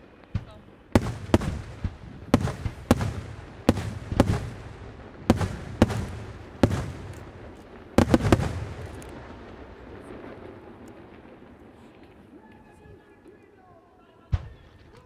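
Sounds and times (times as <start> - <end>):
firework shells bursting: 0.2 - 10.0.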